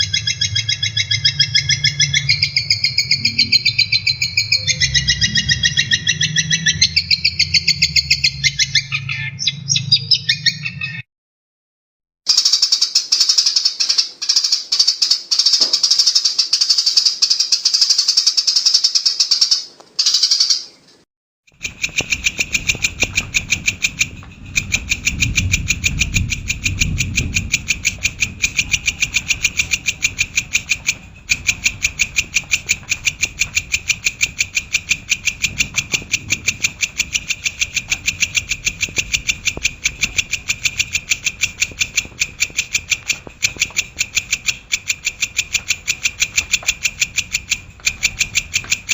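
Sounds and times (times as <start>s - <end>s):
low rumble: 0.0s - 10.9s, 22.4s - 45.7s
shrike singing: 0.0s - 11.0s, 21.6s - 48.9s.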